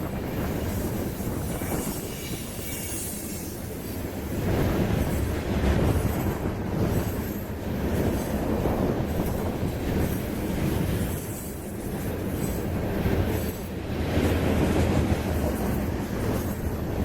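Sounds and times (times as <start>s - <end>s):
train wheels rumbling on rail: 0.0s - 17.0s
high-pitched wheel squeal: 1.6s - 3.6s.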